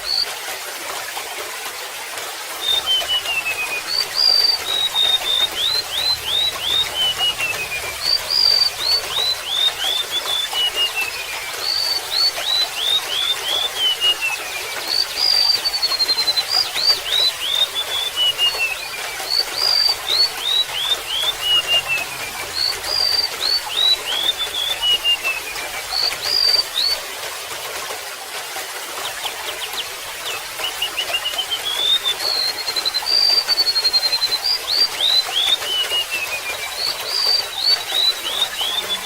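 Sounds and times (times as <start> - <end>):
water trickling: 0.0 - 39.0
bird singing high whistled notes: 2.6 - 27.0, 30.6 - 39.0.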